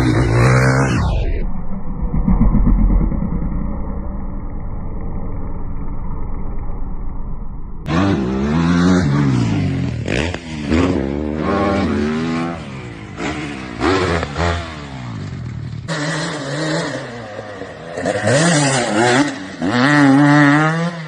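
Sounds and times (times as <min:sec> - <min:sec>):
dirt bike engines revving: 0:00.0 - 0:01.2, 0:07.9 - 0:21.0.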